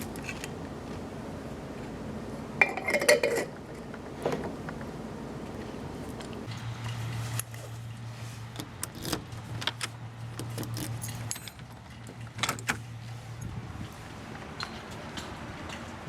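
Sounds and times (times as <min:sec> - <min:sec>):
low appliance hum: 0:00.0 - 0:16.0
metal kitchenware clattering: 0:02.6 - 0:03.6.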